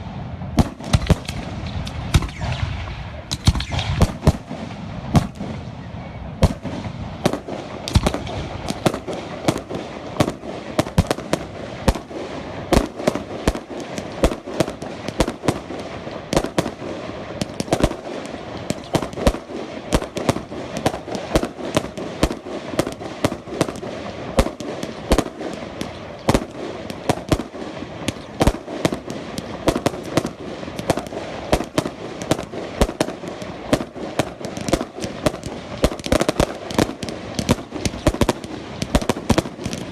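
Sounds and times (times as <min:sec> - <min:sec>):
fireworks bangs and cracks: 0:00.0 - 0:39.9
rumble of fireworks: 0:00.0 - 0:39.9.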